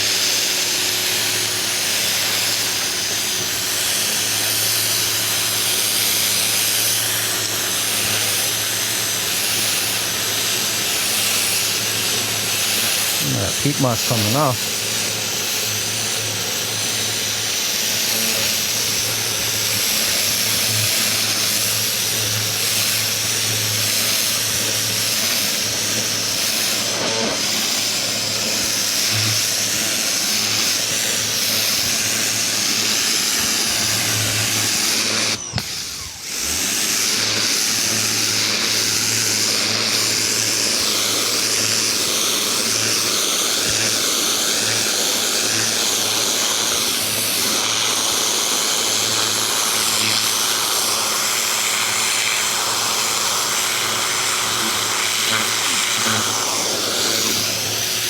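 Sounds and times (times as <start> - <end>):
pressure washer motor hum: 0.0 - 58.0
water jet hissing on wood: 0.0 - 58.0.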